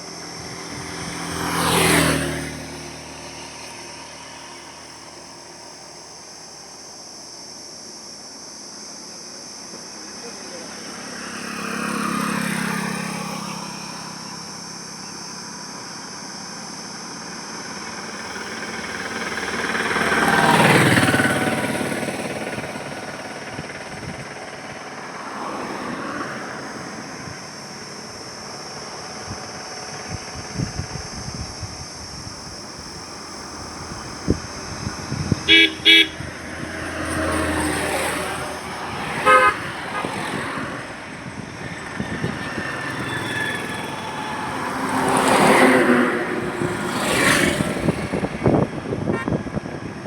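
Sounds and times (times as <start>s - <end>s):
vehicles passing: 0.0s - 50.0s
steady high-pitched whine: 2.4s - 11.7s, 12.6s - 36.5s.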